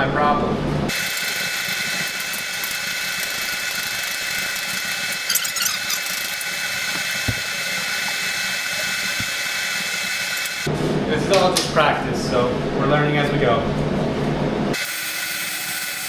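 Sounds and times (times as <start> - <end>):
welding arc buzzing hiss: 0.9 - 10.7, 14.8 - 16.0.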